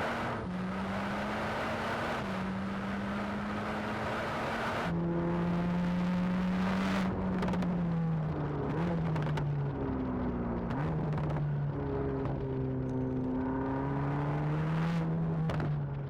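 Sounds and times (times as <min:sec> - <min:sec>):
sports car engine running: 0:05.6 - 0:16.0.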